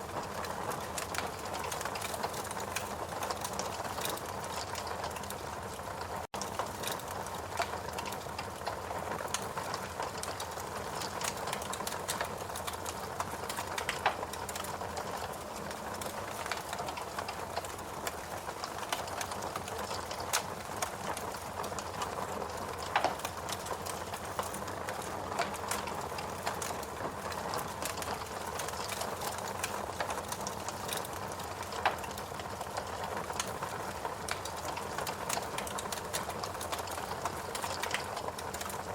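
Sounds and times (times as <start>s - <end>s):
fireplace crackling and popping: 0.0s - 38.9s.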